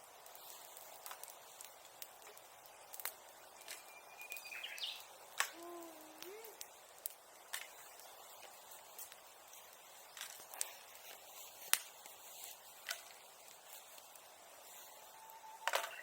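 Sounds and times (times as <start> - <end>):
bonfire crackling and popping: 0.0 - 16.0.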